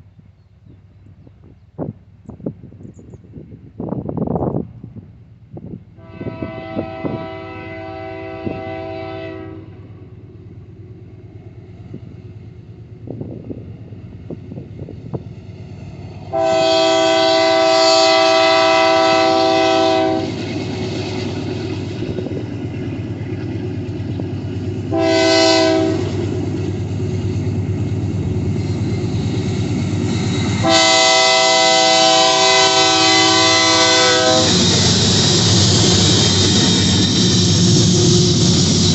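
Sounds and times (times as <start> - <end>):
moving train rumble: 0.0 - 38.9
locomotive horn blasts: 6.0 - 9.8, 16.3 - 20.4, 24.9 - 26.4, 30.6 - 34.7.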